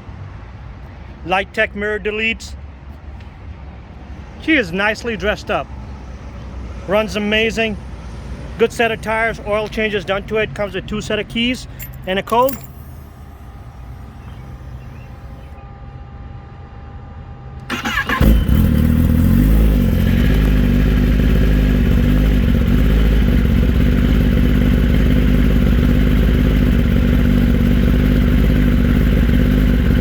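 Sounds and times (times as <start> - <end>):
motorcycle engine starting and idling: 11.7 - 15.6, 17.6 - 30.0.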